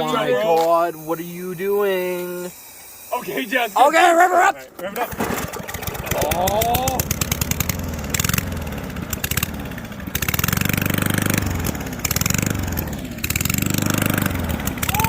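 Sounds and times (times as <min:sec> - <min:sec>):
lawn mower engine revving: 0:04.8 - 0:15.0.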